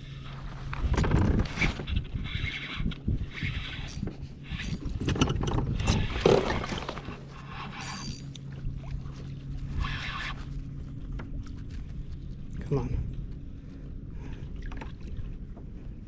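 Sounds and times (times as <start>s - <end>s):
steady low hum: 0.0s - 16.0s
scraping and knocking on kayak: 4.8s - 8.0s.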